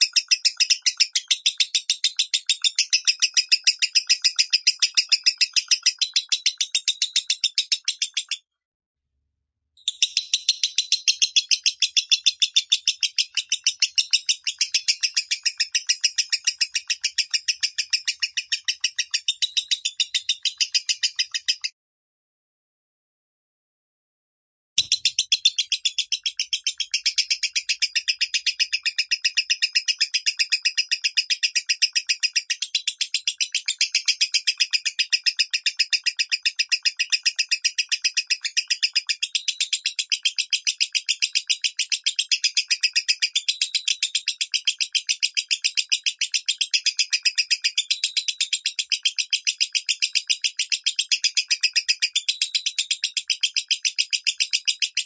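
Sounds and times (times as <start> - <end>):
lovebird shrill chirps: 9.8 - 21.7, 24.8 - 37.6.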